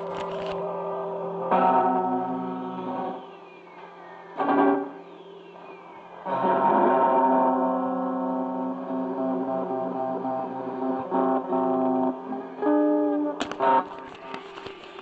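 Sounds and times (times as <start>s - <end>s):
guitar chords strummed: 0.0s - 3.3s, 4.4s - 5.3s, 6.2s - 14.4s.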